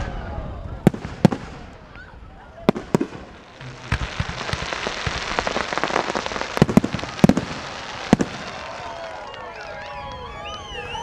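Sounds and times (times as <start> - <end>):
loud fireworks bangs: 0.8 - 2.0, 2.6 - 9.4
fireworks crackling: 0.9 - 10.5.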